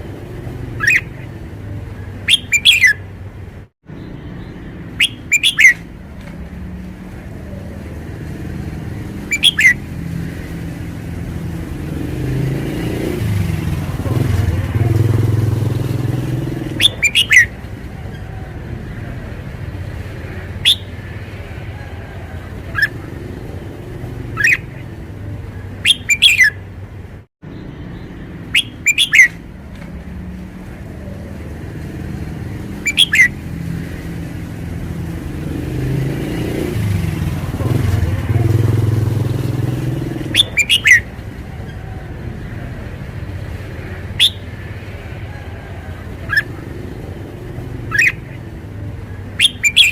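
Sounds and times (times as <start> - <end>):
bird singing short phrases: 0.8 - 1.3, 2.3 - 3.0, 4.0 - 5.9, 9.3 - 9.8, 16.7 - 17.5, 20.6 - 20.9, 25.8 - 26.6, 27.5 - 29.4, 32.8 - 33.4, 40.3 - 41.0, 44.2 - 44.5, 49.4 - 49.9.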